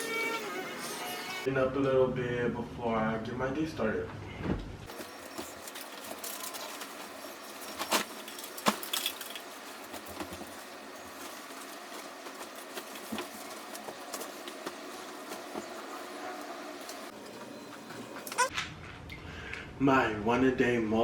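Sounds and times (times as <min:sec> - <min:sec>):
objects clicking and knocking: 0:04.9 - 0:16.0.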